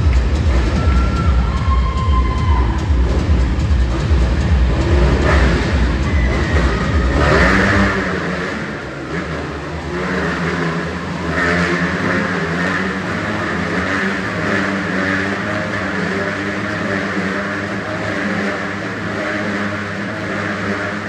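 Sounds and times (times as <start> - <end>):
heavy low rumble: 0.0 - 11.3
motorcycle engines revving: 0.0 - 21.0.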